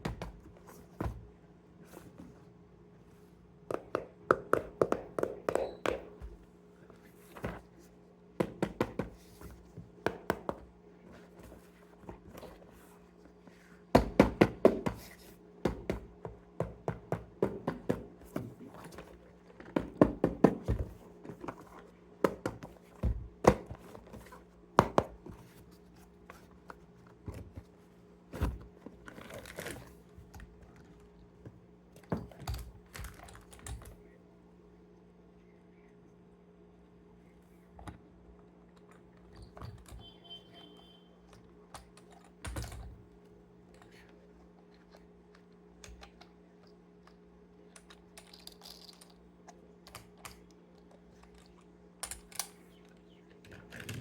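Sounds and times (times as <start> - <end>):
faint steady hum: 0.0 - 54.0
hands tapping toy boxes: 3.7 - 6.4, 14.0 - 18.6, 19.6 - 21.5.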